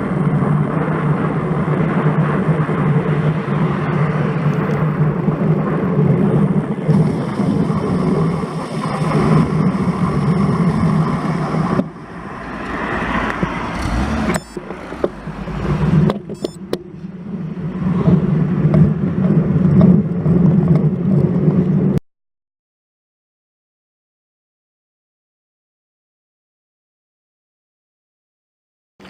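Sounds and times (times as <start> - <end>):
bike tyre and road noise: 0.0 - 22.0
wind on camera microphone: 0.0 - 22.0.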